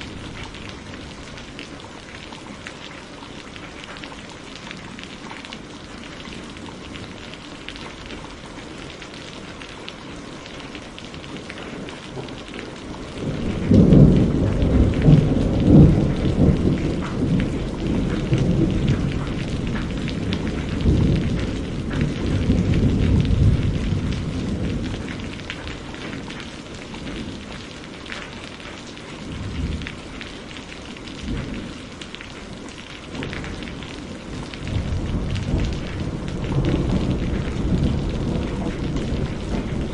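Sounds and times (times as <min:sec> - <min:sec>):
steady rain falling: 0:00.0 - 0:39.9
rumble of thunder: 0:11.6 - 0:27.6, 0:29.2 - 0:30.2, 0:31.2 - 0:31.8, 0:33.1 - 0:39.9.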